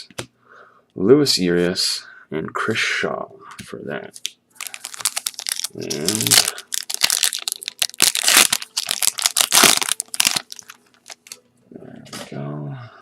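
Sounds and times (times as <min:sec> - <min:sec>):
foil wrapper crinkling and tearing: 0:04.6 - 0:11.4.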